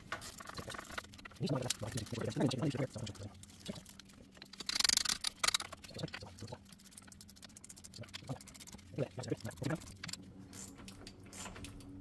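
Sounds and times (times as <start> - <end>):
ratchet clicking: 4.6 - 5.8.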